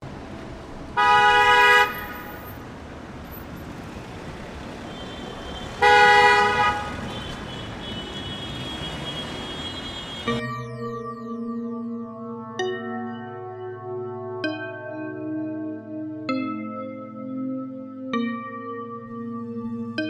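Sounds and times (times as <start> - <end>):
vehicle horn honking: 1.0 - 2.6, 4.8 - 10.4.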